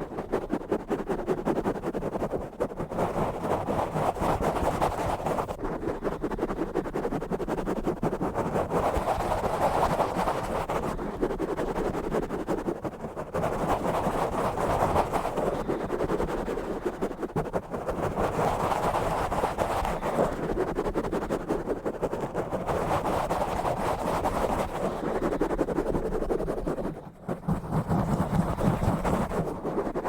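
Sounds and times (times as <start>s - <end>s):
scratching on a microphone: 0.0s - 30.0s.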